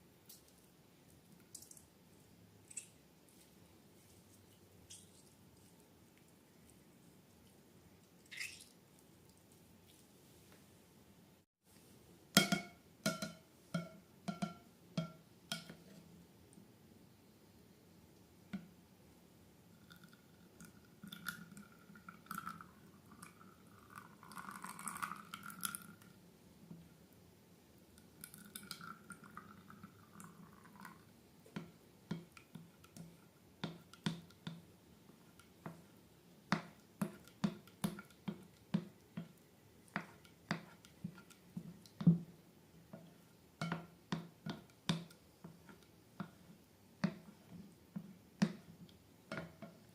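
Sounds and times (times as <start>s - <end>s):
wet slime squishing: 8.0s - 10.0s.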